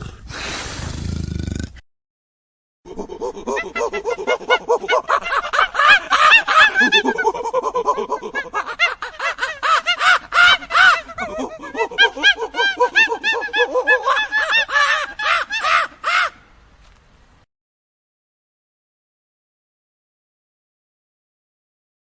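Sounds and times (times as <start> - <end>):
bird cawing: 14.6 - 16.5.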